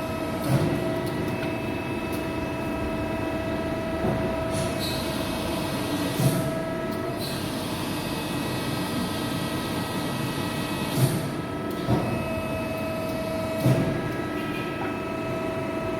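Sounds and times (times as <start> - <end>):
electric motor and pump humming: 0.0 - 15.9.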